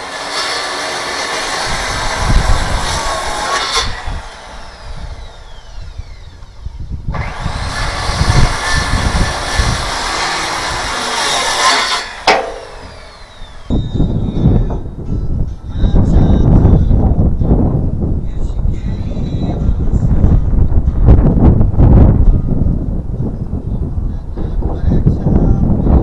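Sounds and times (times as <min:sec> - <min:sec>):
power saw cutting wood: 0:00.0 - 0:14.7
saw blade winding down whine: 0:00.0 - 0:14.7.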